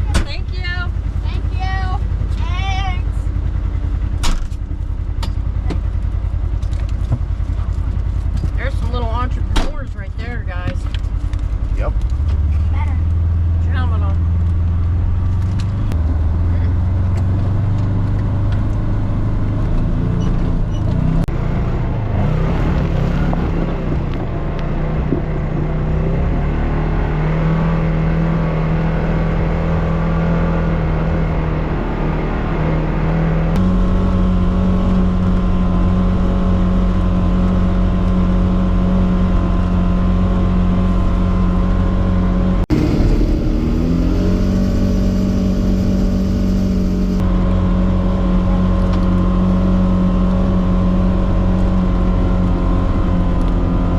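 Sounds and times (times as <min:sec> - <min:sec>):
off-road vehicle engine running: 0:00.0 - 0:53.9.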